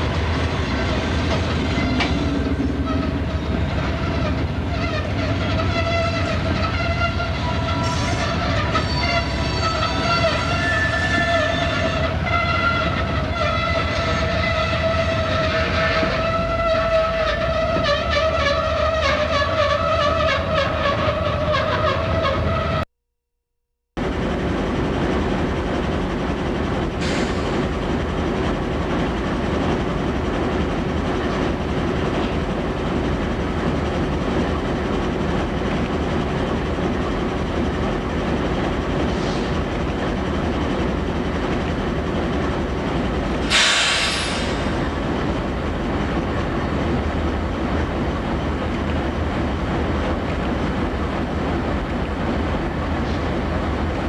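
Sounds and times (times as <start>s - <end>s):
freight train rumbling: 0.0s - 22.8s, 24.0s - 54.0s
sharp hiss or squeal: 43.5s - 44.9s.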